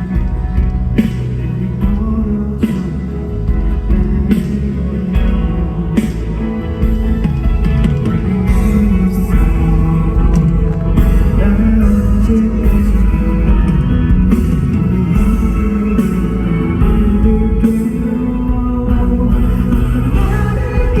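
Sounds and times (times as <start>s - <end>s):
live pop song over loudspeakers: 0.0s - 21.0s
man singing: 0.0s - 21.0s.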